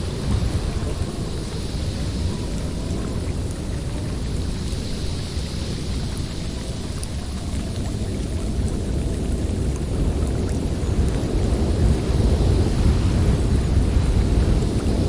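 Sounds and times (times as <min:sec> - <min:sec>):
blizzard wind rumbling: 0:00.0 - 0:15.0.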